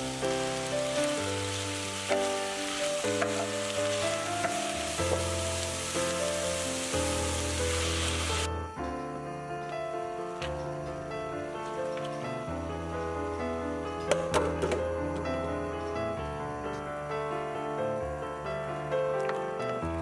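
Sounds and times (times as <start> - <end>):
food sizzling in frying pan: 0.0 - 8.5
background music: 0.0 - 20.0.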